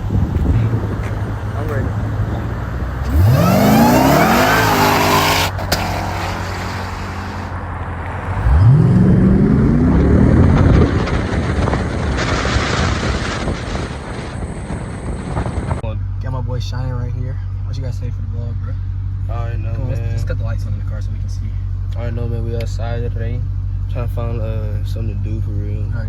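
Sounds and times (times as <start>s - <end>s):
car engine revving: 0.0s - 16.5s.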